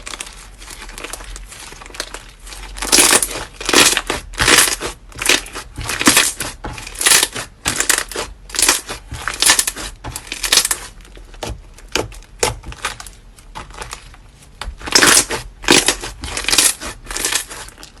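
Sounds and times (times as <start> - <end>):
slime squishing and crackling: 0.0 - 18.0.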